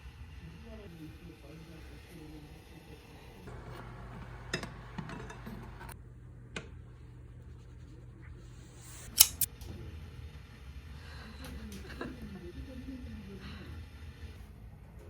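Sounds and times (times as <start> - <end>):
metal cookware clicking: 9.0 - 9.5.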